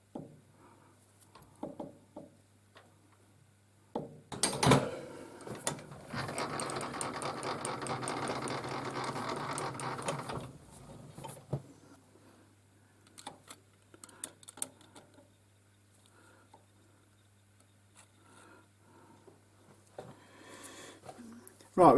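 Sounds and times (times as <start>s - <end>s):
metal lathe clattering: 5.6s - 10.5s.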